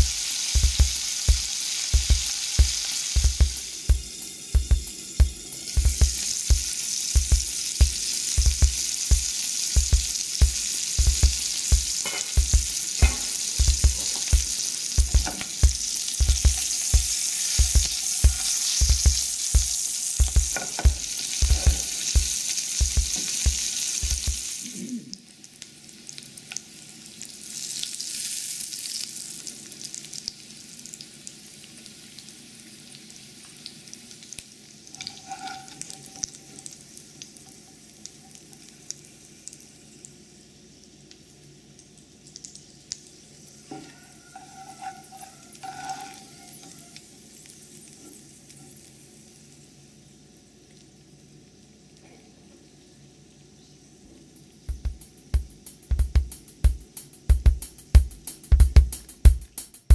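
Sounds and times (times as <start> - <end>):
seeds sizzling in oil: 0.0 - 59.9
low repeating thump: 54.7 - 59.4.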